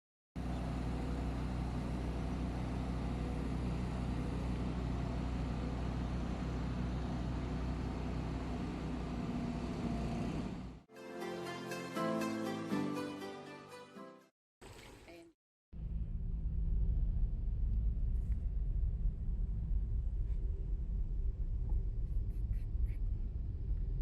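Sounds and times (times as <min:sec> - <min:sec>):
heavy vehicle engine droning: 0:00.4 - 0:10.8.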